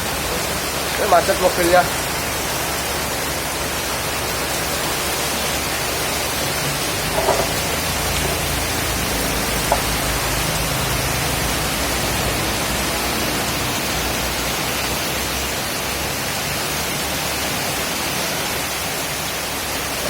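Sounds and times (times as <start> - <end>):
heavy rain falling: 0.0 - 20.0
faint knocks: 7.1 - 7.6.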